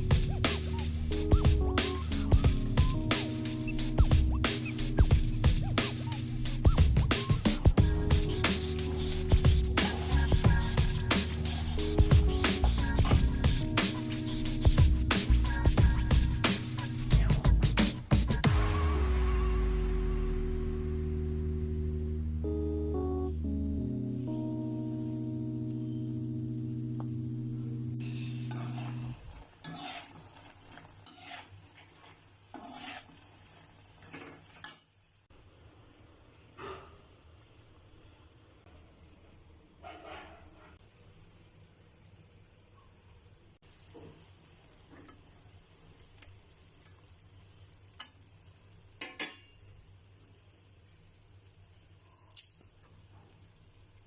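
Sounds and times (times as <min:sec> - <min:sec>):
background music: 0:00.0 - 0:29.2
low steady hum: 0:18.5 - 0:29.4
spoon scraping cooking pan: 0:28.1 - 0:34.8
metal utensil clinking on cookware: 0:49.0 - 0:49.6.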